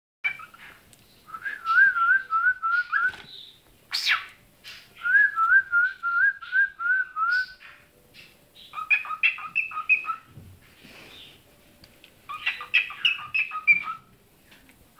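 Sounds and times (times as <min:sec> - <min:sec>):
cockatiel whistling: 0:00.2 - 0:04.3, 0:04.9 - 0:07.8, 0:08.7 - 0:10.3, 0:12.3 - 0:14.1.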